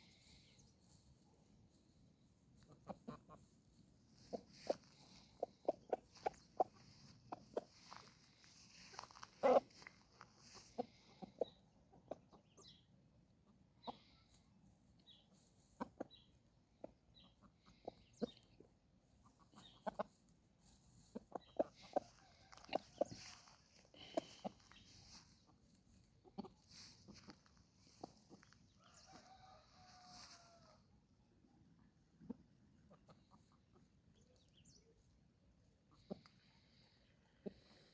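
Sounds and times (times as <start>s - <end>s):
chickens clucking softly: 0.4s - 37.9s.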